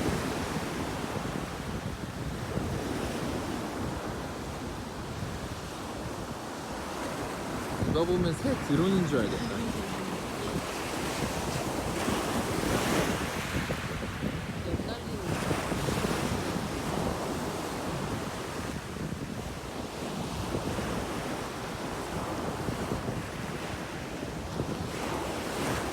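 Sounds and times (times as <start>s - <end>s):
sea waves washing on shore: 0.0s - 25.9s
wind rumbling on microphone: 0.0s - 25.9s.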